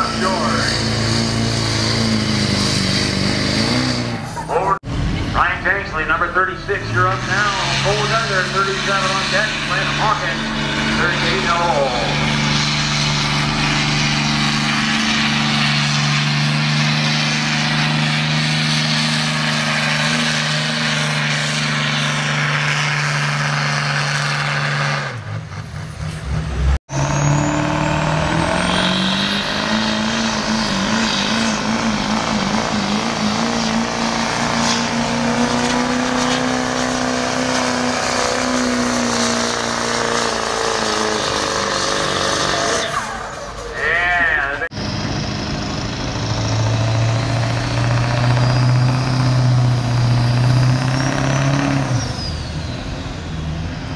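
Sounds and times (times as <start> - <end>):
diesel engine at high revs: 0.0 - 53.9
engine revving up: 0.0 - 53.9.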